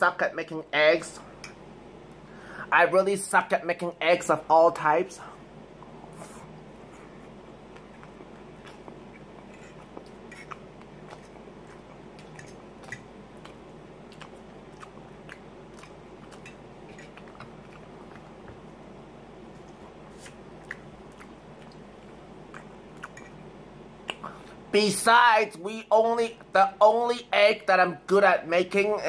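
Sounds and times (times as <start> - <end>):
steady background hum: 0.0 - 29.0
person chewing food: 5.8 - 24.6.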